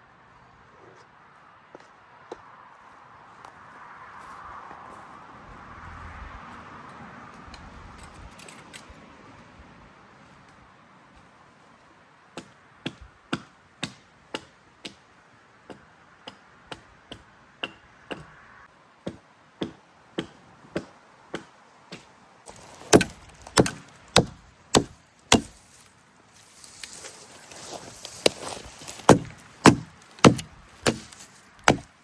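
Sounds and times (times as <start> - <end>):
chopping strikes into wood: 12.4 - 15.0, 19.1 - 25.8, 26.8 - 31.9.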